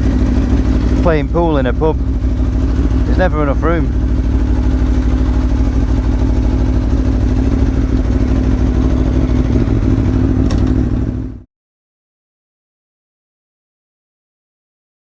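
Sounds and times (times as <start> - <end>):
motorcycle engine running at low revs: 0.0 - 11.5.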